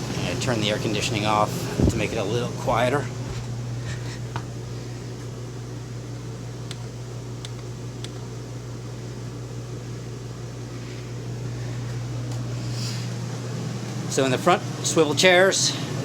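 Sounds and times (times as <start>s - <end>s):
air conditioning unit humming: 0.0s - 16.0s.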